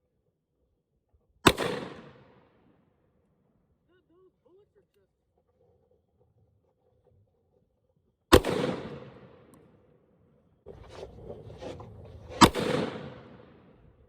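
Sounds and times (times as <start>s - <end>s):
revolver gunshots: 1.4s - 2.6s, 8.3s - 9.8s, 12.2s - 13.9s.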